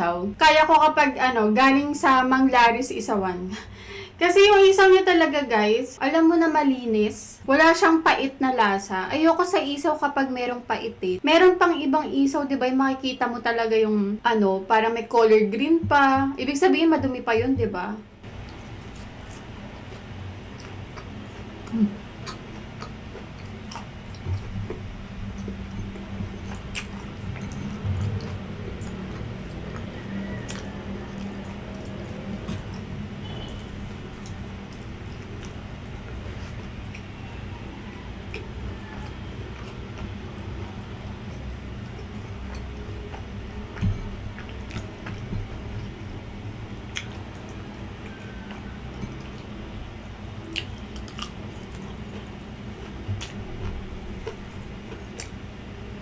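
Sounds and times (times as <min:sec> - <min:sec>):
wet mouth chewing clicks: 0:18.4 - 0:37.2, 0:37.9 - 0:46.1, 0:46.8 - 0:49.5, 0:50.4 - 0:55.4.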